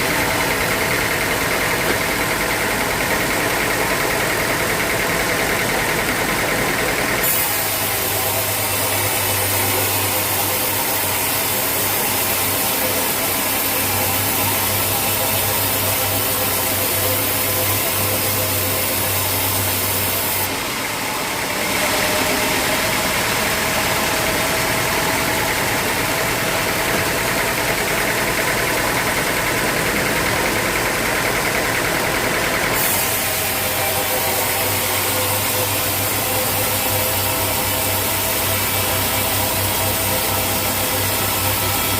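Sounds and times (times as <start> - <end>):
sawmill machinery running: 0.0 - 41.9.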